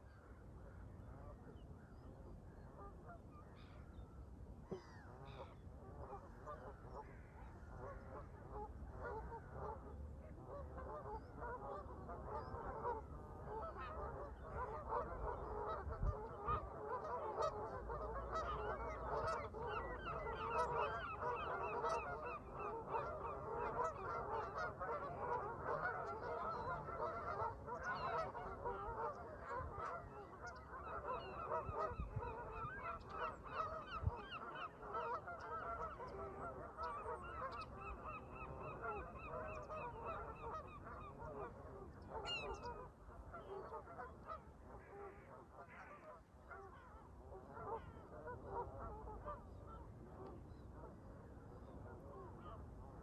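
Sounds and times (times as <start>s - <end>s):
geese honking: 10.5s - 49.8s.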